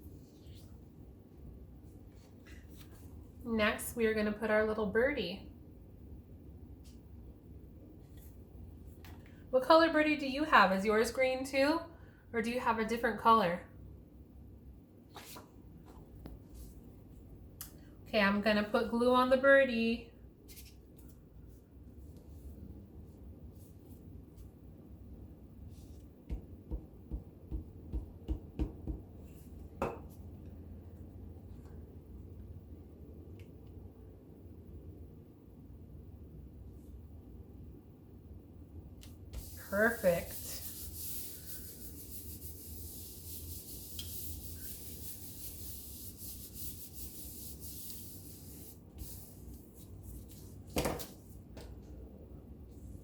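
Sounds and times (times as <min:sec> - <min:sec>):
paper rubbing: 0:39.4 - 0:50.6.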